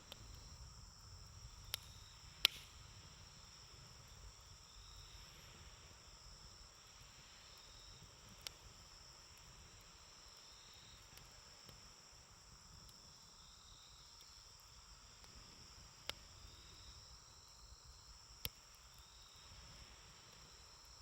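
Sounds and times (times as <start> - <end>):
campfire popping: 0.0 - 21.0
insects chirring: 0.0 - 21.0.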